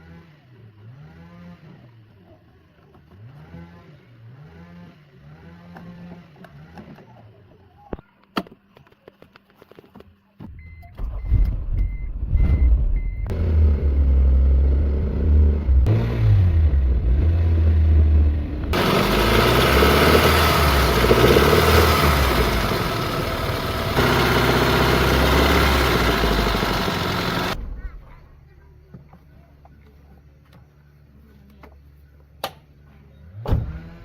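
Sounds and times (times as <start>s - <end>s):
car engine starting and running: 11.0s - 27.9s, 33.3s - 34.0s.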